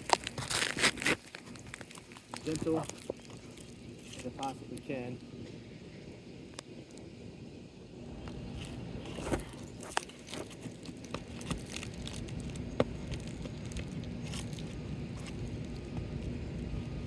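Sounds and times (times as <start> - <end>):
sealant strip cracking: 0.0 - 4.9, 8.6 - 16.4
roof shingles crunching and scraping: 0.0 - 5.2, 8.2 - 17.0.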